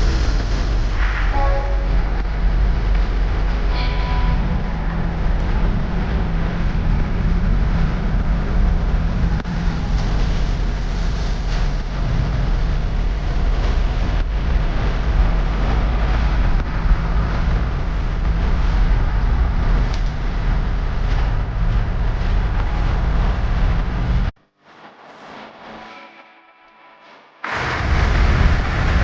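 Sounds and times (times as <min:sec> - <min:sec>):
moving vehicle low rumble: 0:00.0 - 0:25.8, 0:27.5 - 0:29.0.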